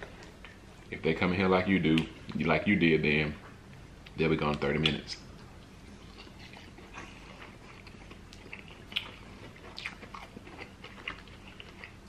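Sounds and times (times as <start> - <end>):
people chewing food: 5.3 - 12.0.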